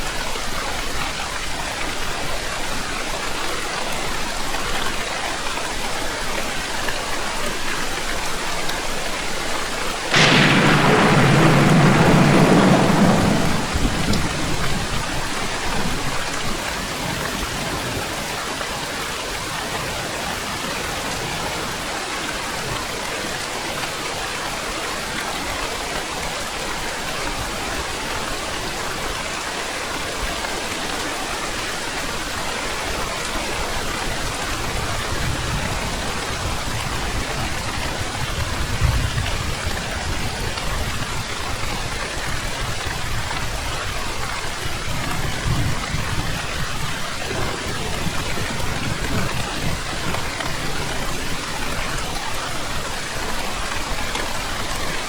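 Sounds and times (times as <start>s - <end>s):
steady rain falling: 0.0s - 55.0s
thunder rumbling: 10.1s - 17.2s, 44.8s - 51.8s.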